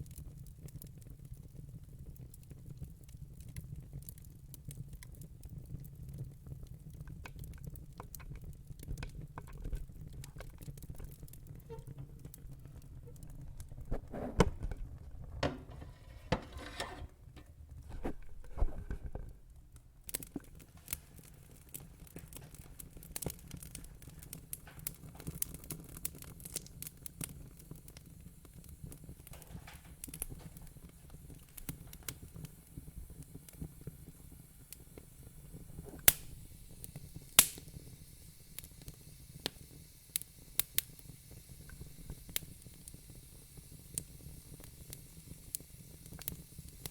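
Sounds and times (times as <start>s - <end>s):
fire crackling: 0.0s - 46.9s
loud sharp pops: 35.8s - 36.4s, 37.4s - 37.8s.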